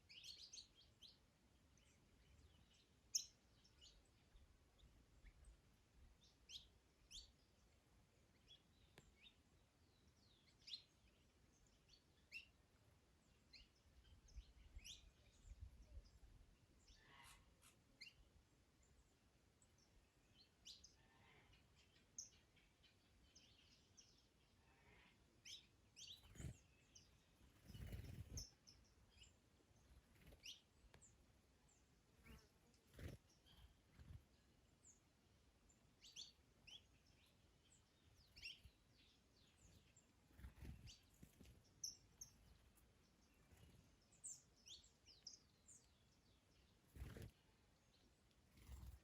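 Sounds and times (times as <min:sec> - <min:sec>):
birds chirping: 0:19.7 - 0:35.1, 0:35.7 - 0:49.0.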